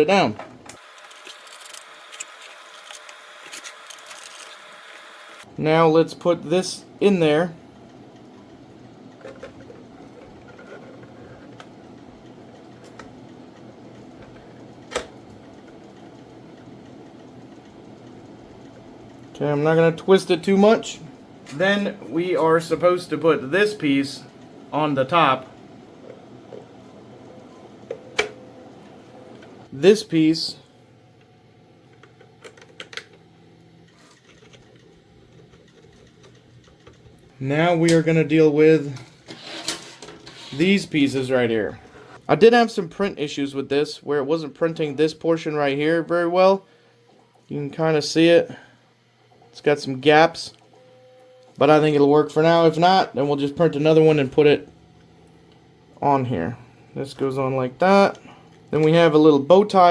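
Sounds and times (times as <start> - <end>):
faint steady hum: 0.0 - 59.9
plastic parts clicking and tapping: 32.0 - 33.2.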